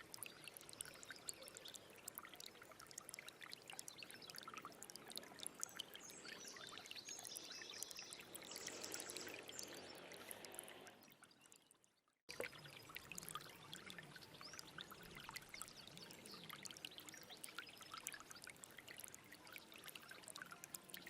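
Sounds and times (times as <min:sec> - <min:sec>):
stream trickling over stones: 0:00.0 - 0:21.0.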